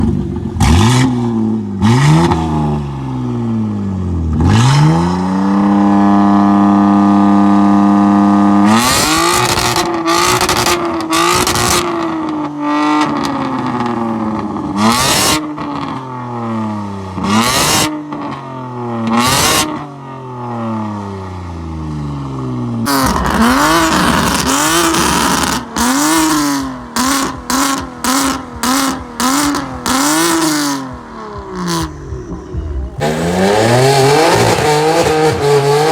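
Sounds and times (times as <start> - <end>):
car exhaust revving: 0.0 - 18.4, 19.0 - 35.9
exhaust pops: 22.9 - 35.9.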